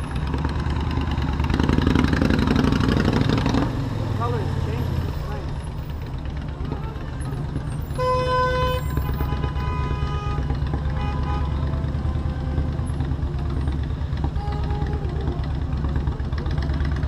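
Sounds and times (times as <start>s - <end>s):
motorcycle engine running: 0.0s - 17.0s
vehicle horn honk: 7.9s - 12.5s, 14.3s - 15.1s.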